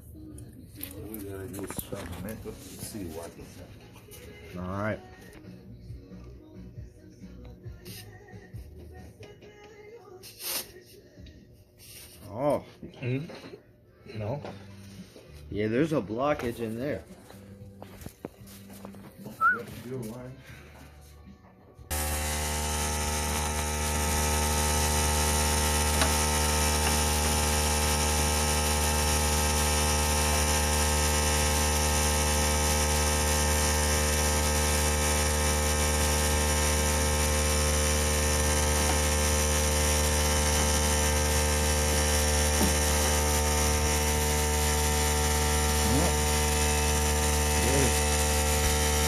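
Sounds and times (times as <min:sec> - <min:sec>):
mechanical drone with low hum: 0:21.2 - 0:49.0.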